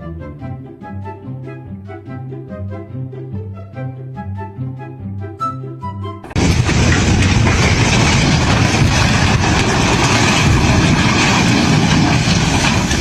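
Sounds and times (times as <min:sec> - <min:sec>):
heavy machinery rumbling: 0:06.3 - 0:13.0.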